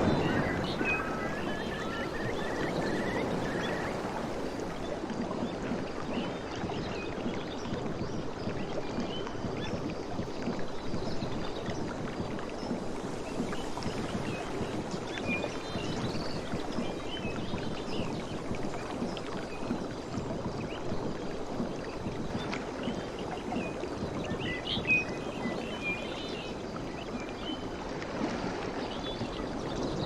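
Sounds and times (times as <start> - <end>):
faint high chirps: 0.0 - 4.8
sea waves washing on shore: 0.0 - 30.0.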